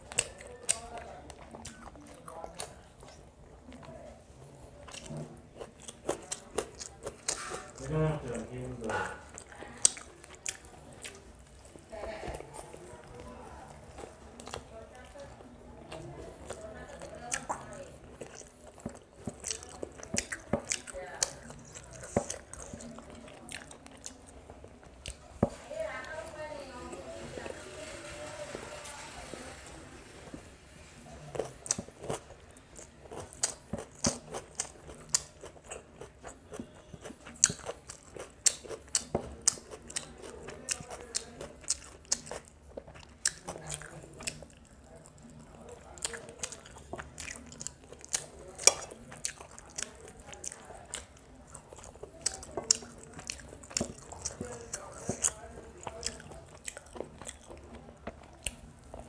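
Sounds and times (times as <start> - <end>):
person chewing with lip smacks: 9.3 - 11.3, 15.9 - 25.6, 31.3 - 59.0.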